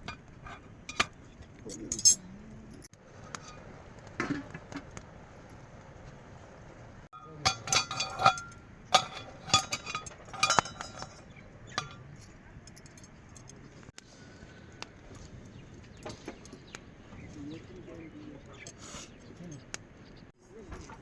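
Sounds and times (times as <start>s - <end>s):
hard objects clinking together: 0.0s - 3.6s, 7.2s - 13.6s.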